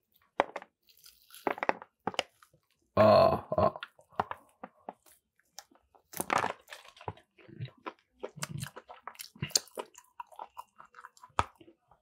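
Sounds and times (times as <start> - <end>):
man talking: 3.0 - 3.8
man chewing: 3.8 - 12.0.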